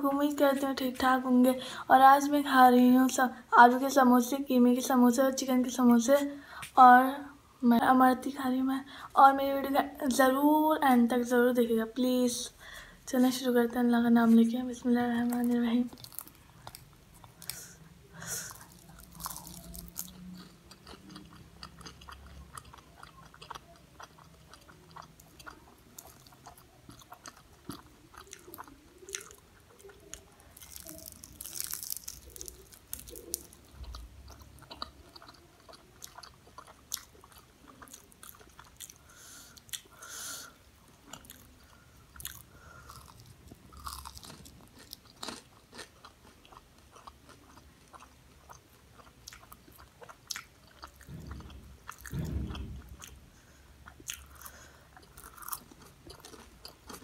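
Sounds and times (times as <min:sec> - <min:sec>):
biting crispy pastry: 0:15.3 - 0:39.9, 0:41.0 - 0:53.0, 0:53.8 - 0:57.0
chewing: 0:15.4 - 0:53.2, 0:53.8 - 0:57.0.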